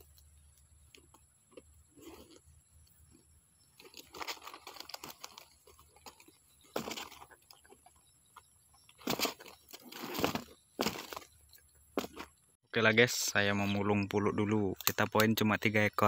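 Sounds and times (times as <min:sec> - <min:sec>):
rustling and crinkling handling: 0:00.0 - 0:11.4.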